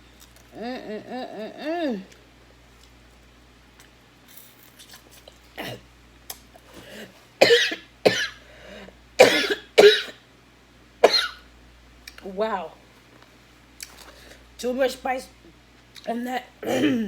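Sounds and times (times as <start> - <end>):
woman coughing: 7.4 - 8.4, 9.2 - 10.2, 11.0 - 11.4, 16.6 - 17.0.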